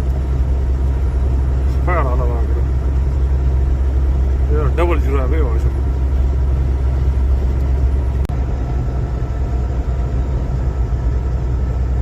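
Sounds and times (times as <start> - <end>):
engine and road drone: 0.0 - 12.0.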